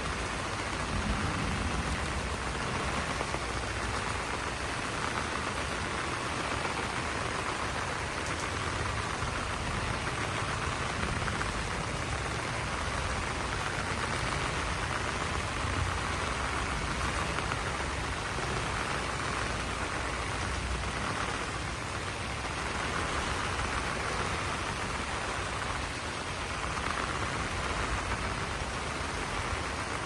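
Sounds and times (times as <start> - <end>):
rain on broad leaves: 0.0 - 30.0
low rumble: 0.4 - 4.4.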